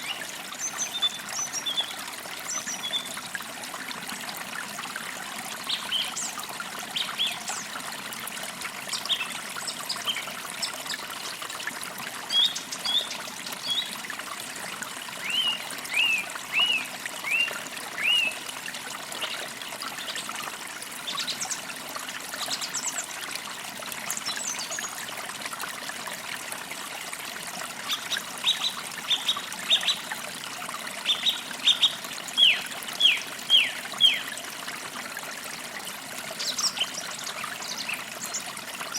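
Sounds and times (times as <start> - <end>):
creek trickling over stones: 0.0 - 38.9
small birds chirping: 31.0 - 34.3.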